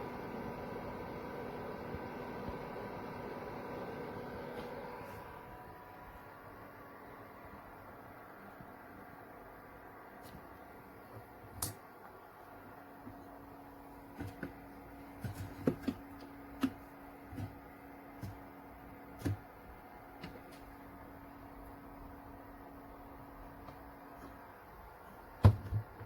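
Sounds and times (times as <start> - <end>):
fridge humming: 8.9 - 26.0.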